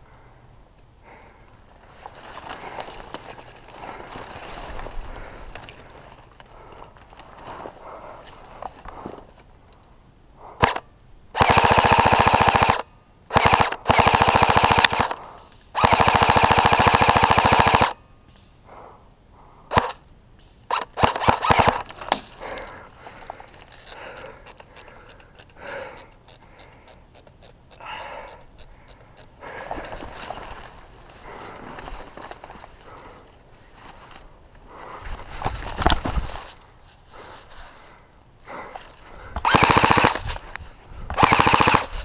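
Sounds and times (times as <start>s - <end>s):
airsoft rifle firing bursts: 11.4s - 15.2s, 15.8s - 18.0s, 20.7s - 22.2s, 39.4s - 40.3s, 41.2s - 42.0s.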